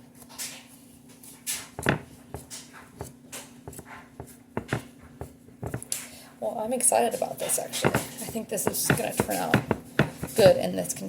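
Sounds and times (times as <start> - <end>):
steady low hum: 0.8 - 11.0
hands squelching dough: 7.1 - 10.8.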